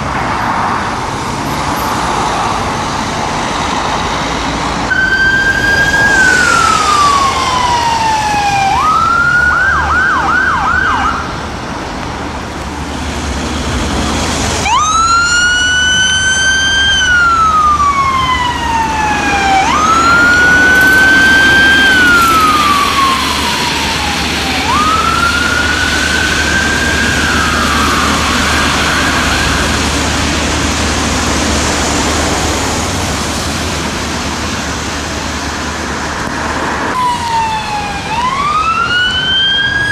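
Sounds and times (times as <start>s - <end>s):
road traffic noise: 0.0s - 39.9s
ambulance siren wailing and yelping: 4.8s - 11.4s, 14.6s - 30.4s, 36.9s - 39.9s.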